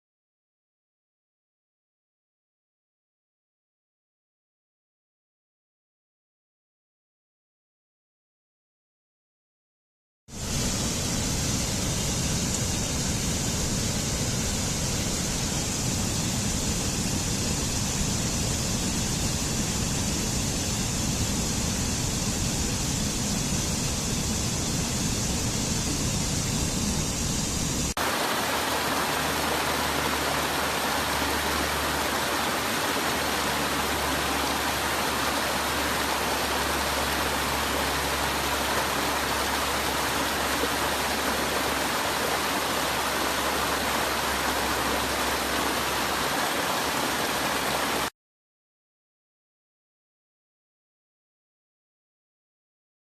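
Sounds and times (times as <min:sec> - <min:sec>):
waterfall rushing: 0:24.4 - 0:48.1.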